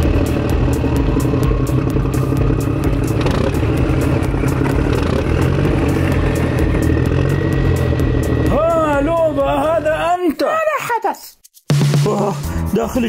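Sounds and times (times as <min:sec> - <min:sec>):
vehicle motor humming: 0:00.0 - 0:10.1.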